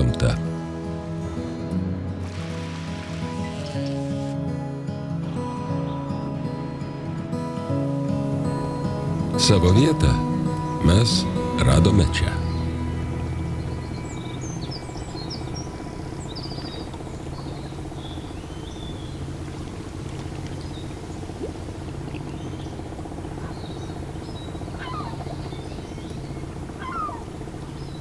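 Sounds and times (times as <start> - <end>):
birds chirping: 0.0 - 1.6, 5.2 - 7.3, 8.2 - 28.0
steady low hum: 8.2 - 28.0
bird twittering calls: 8.3 - 28.0.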